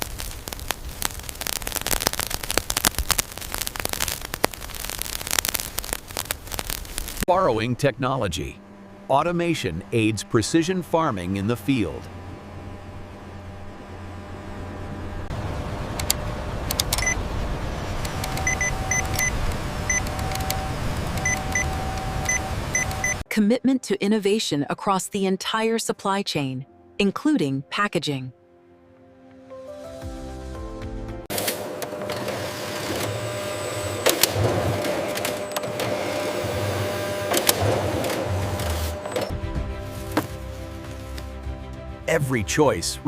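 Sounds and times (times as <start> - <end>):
sharp crackling: 0.0 - 8.6
low machine rumble: 7.3 - 23.2
high electronic beeps and clicks: 18.2 - 20.6, 21.2 - 23.2.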